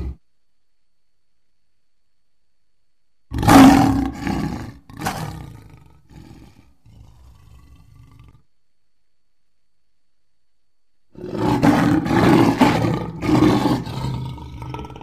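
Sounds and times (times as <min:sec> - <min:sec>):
lion grunting: 0:00.0 - 0:00.2, 0:03.3 - 0:08.5, 0:11.2 - 0:15.0
lion roaring: 0:00.0 - 0:00.2, 0:03.3 - 0:08.5, 0:11.2 - 0:15.0.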